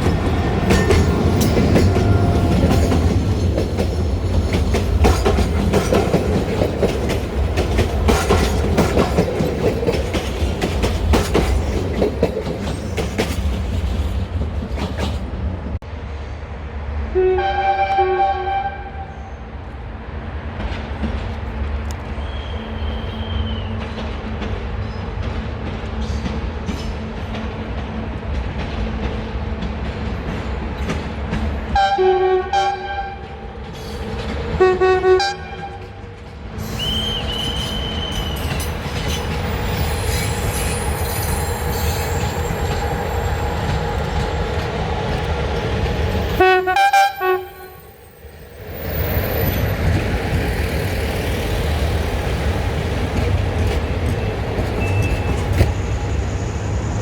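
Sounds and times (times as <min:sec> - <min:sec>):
train running: 0:00.0 - 0:57.0
train horn blasts: 0:17.1 - 0:19.5, 0:31.8 - 0:33.4, 0:34.6 - 0:36.0, 0:46.4 - 0:48.0
high-pitched squeal: 0:36.6 - 0:44.9.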